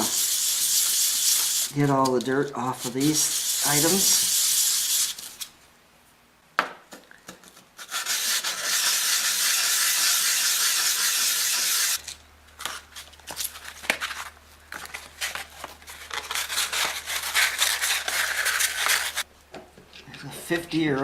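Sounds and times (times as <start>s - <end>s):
steady hiss: 0.0s - 5.5s.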